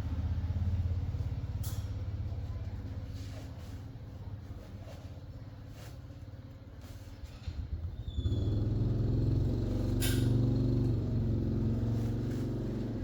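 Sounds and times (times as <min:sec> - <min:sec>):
engine running: 0:08.2 - 0:13.0.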